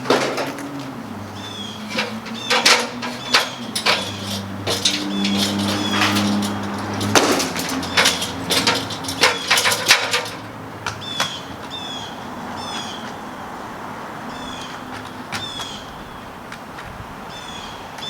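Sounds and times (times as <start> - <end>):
knocks and clatter: 0.0 - 11.4
bird chirping: 1.2 - 6.9, 10.9 - 13.4, 14.3 - 16.3.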